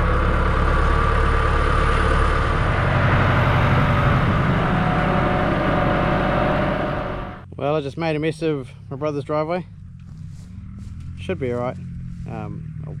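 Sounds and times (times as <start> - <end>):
tractor engine running: 0.0 - 7.4.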